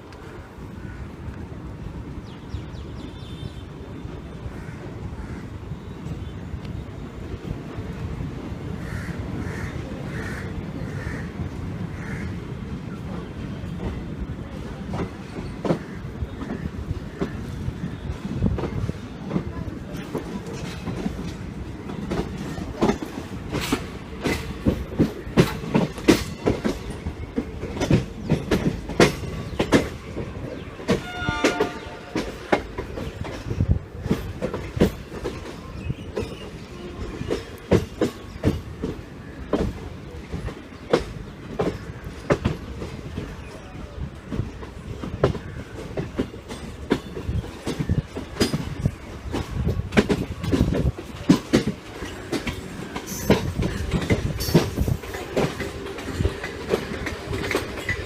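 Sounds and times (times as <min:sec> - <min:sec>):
train wheels clattering over rails: 0:07.2 - 0:58.0
train horn: 0:30.9 - 0:32.6.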